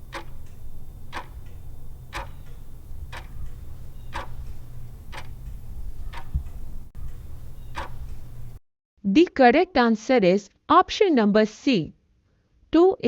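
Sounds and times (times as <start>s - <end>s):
clock ticking: 0.0s - 8.6s
low steady hum: 0.0s - 8.6s.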